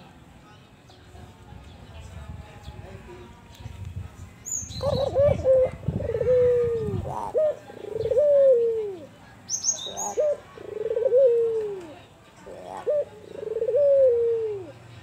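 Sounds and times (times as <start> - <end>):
dove cooing: 4.8 - 9.1, 9.7 - 14.8.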